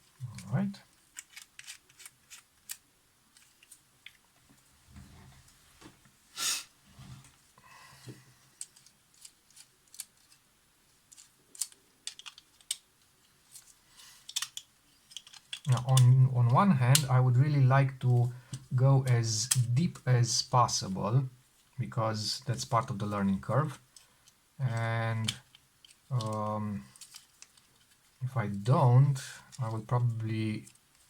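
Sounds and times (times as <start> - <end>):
small parts and tools clicking: 0.1 - 4.2, 8.5 - 16.1, 23.9 - 28.2.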